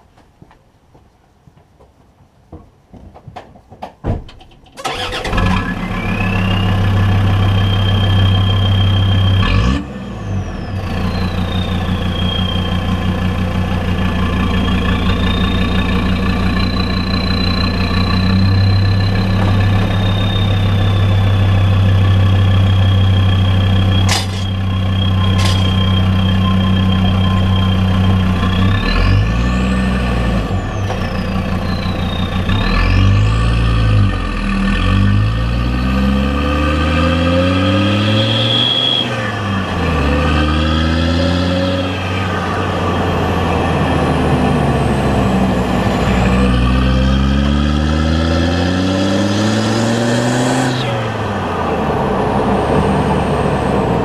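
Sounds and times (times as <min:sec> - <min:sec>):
diesel engine running: 0:04.8 - 0:54.0
high turbo whistle: 0:05.7 - 0:13.3, 0:14.2 - 0:29.7, 0:37.9 - 0:39.6.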